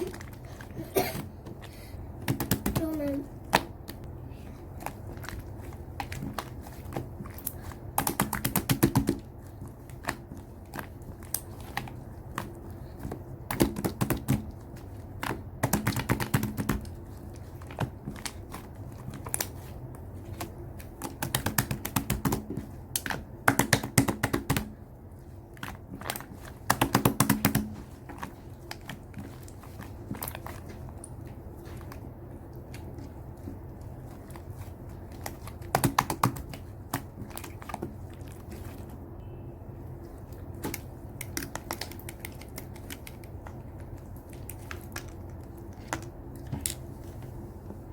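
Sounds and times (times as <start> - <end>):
slime clicking and popping: 35.1 - 37.8.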